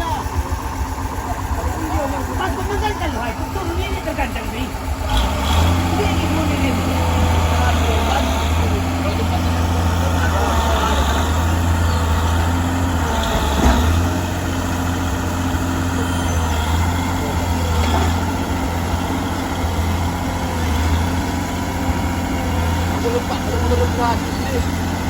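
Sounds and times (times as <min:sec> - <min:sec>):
truck diesel engine running: 0:00.0 - 0:25.0.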